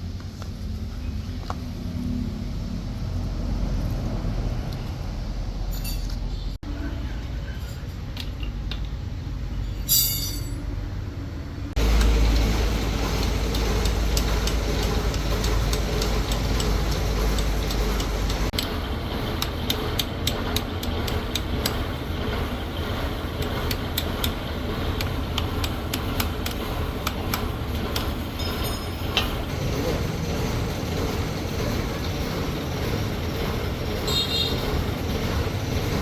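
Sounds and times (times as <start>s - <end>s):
metallic clink: 5.7s - 6.3s, 9.6s - 10.7s, 28.4s - 29.4s
machine motor humming: 11.8s - 36.0s
sharp clicks and taps: 23.4s - 28.2s.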